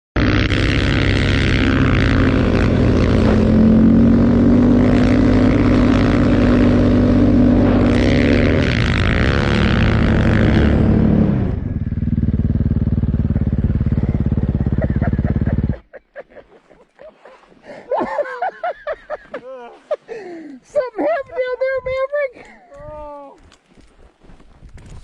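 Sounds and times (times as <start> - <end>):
dirt bike engine revving: 0.2 - 15.8.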